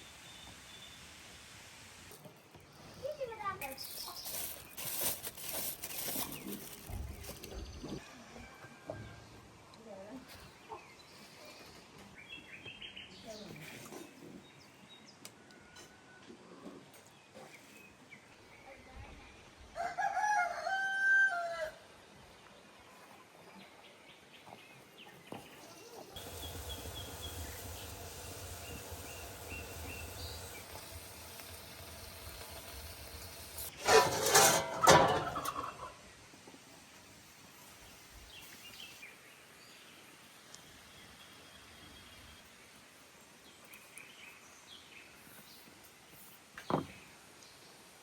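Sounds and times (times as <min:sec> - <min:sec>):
rooster crowing: 0:19.8 - 0:21.8.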